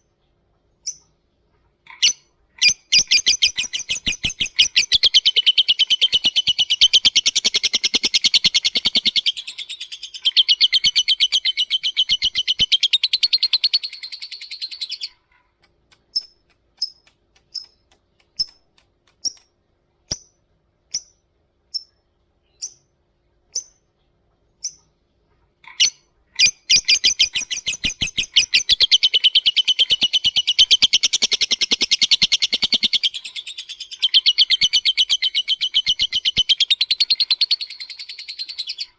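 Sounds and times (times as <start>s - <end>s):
lovebird chatter: 1.9s - 19.5s, 25.7s - 38.9s
lovebird sharp high ticks: 15.6s - 19.5s.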